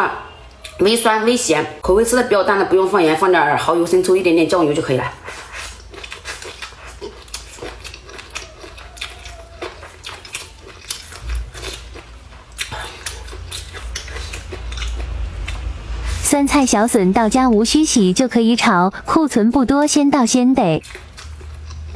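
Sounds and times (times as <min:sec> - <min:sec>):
chewing crunches: 0:05.2 - 0:16.2, 0:20.8 - 0:21.9
low hum: 0:11.0 - 0:19.7.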